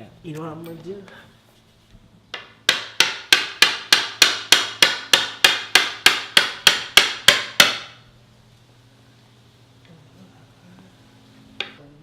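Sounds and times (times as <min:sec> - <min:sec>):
hammer blows on wood: 0:02.4 - 0:08.1.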